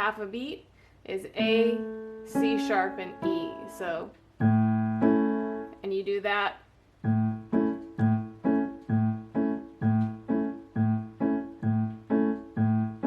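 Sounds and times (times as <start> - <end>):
piano repeating a chord: 1.4 - 5.8, 7.0 - 13.0.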